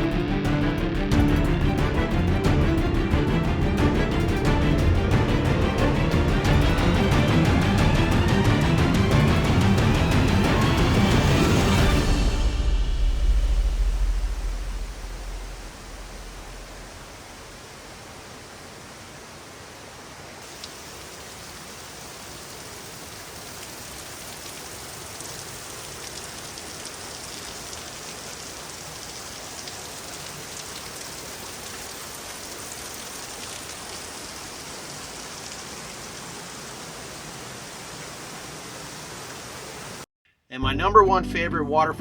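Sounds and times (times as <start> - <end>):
waterfall rushing: 3.2 - 40.1.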